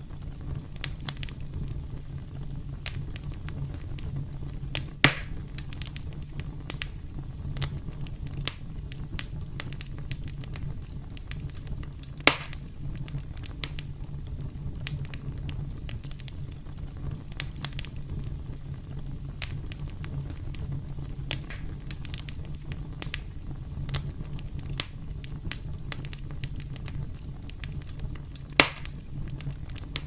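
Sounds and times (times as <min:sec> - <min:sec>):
campfire crackling: 0:00.0 - 0:30.0
loud fire pops: 0:00.0 - 0:30.0.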